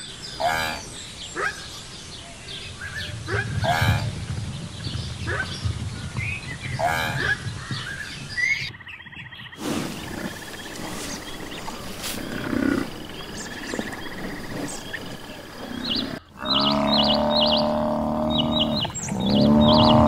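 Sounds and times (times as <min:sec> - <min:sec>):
small birds chirping: 0:00.0 - 0:20.0
bison bellowing: 0:09.6 - 0:20.0.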